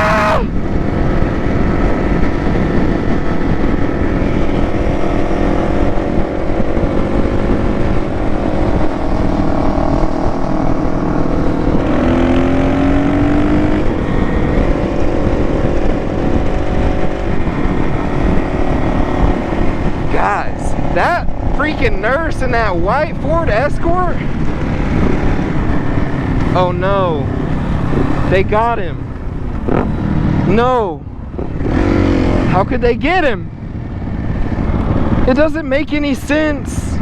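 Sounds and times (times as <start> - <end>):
higher engine note climbing: 0.0 - 37.0
vehicle engine running: 0.0 - 37.0
wind rush on microphone: 0.0 - 37.0.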